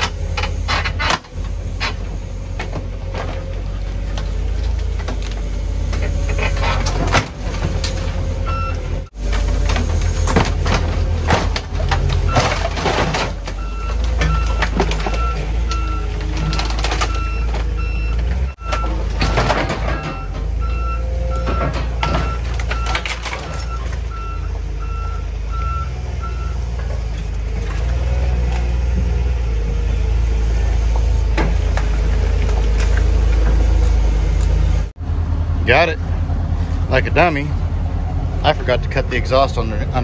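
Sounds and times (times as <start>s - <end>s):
metal crunching and banging: 0.0s - 34.8s
heavy machine engine under load: 0.0s - 40.0s
backup alarm beeping: 8.4s - 8.8s, 13.5s - 26.6s.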